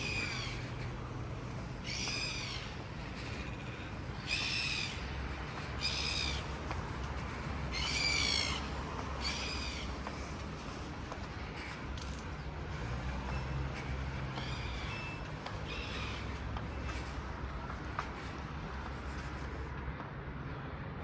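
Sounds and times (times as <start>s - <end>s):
bird calling: 0.0s - 10.4s, 13.2s - 17.1s.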